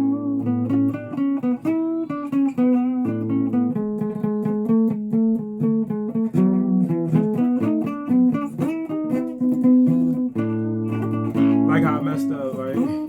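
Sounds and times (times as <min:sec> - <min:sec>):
guitar playing: 0:00.0 - 0:13.0.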